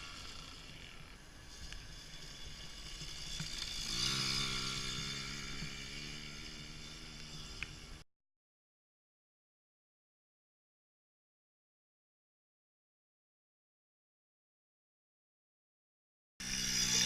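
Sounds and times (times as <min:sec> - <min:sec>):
minibike engine buzzing past: 0:00.0 - 0:08.0, 0:16.4 - 0:17.0.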